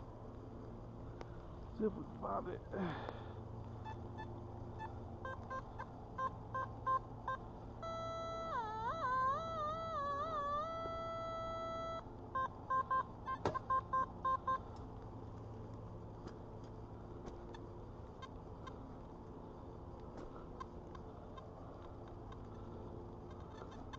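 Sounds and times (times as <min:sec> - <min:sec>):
metal detector beeps: 0:03.8 - 0:14.6
metal detector wavering tone: 0:03.8 - 0:14.6.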